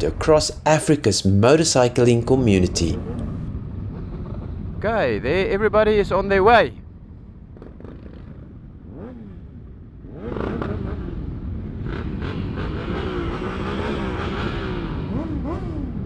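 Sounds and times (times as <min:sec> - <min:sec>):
motorcycle engines revving: 0:00.0 - 0:03.5, 0:07.6 - 0:16.0.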